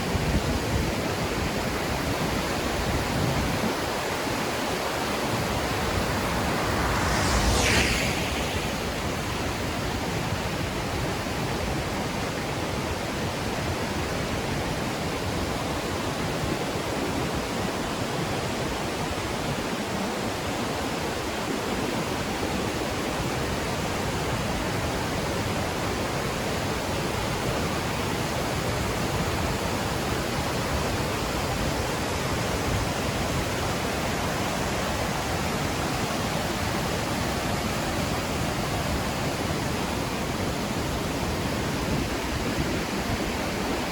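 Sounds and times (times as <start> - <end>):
water rushing: 3.8 - 10.2.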